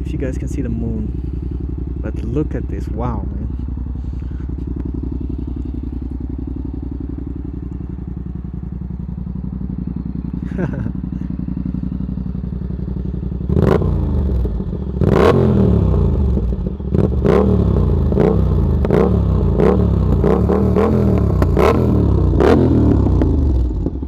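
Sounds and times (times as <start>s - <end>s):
motorcycle engine revving: 0.0s - 24.0s
exhaust cracks: 0.1s - 5.8s, 18.8s - 23.6s.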